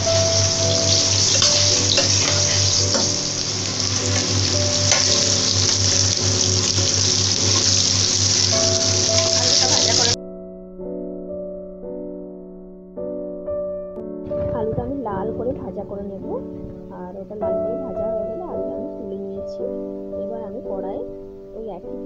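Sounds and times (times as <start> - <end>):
potatoes sizzling in hot oil: 0.0 - 10.2
soft piano music: 0.0 - 22.0.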